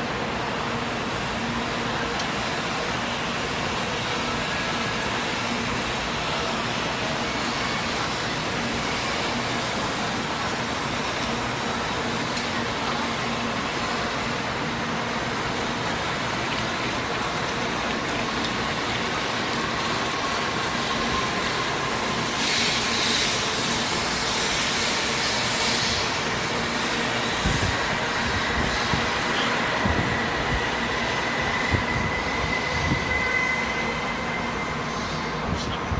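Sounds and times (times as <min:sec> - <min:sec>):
train running noise: 0:00.0 - 0:35.9
train motor whine rising: 0:15.2 - 0:35.9.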